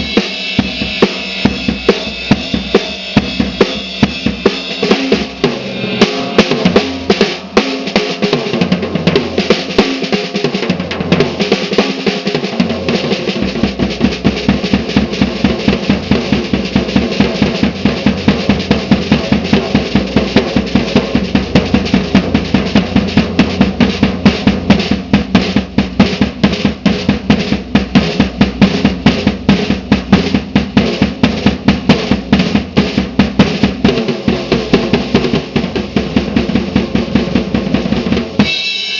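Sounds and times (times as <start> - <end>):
deeper drum: 0.0 - 38.9
snare drum rolls: 0.0 - 38.9.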